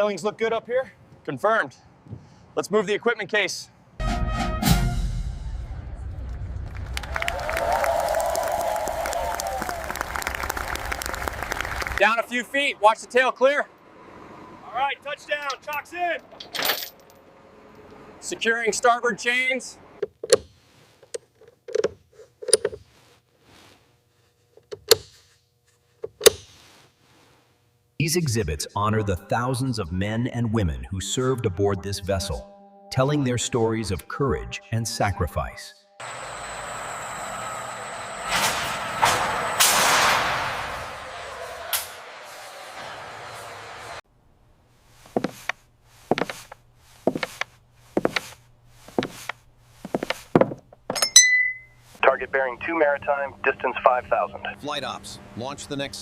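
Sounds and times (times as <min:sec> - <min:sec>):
metal chains clanking: 0:15.5 - 0:17.3, 0:50.9 - 0:51.7.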